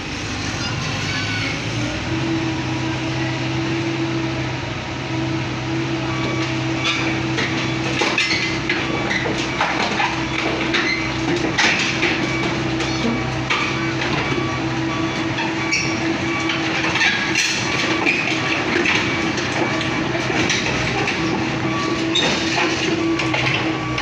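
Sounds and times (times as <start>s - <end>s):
diesel engine running: 0.0s - 24.0s
metallic clanks and knocks: 7.3s - 14.4s, 16.4s - 24.0s.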